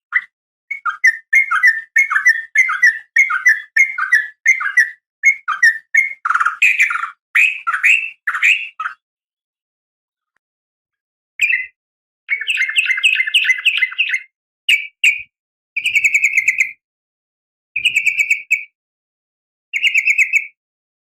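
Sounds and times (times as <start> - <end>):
bird chattering calls: 0.2 - 9.0, 12.3 - 14.2.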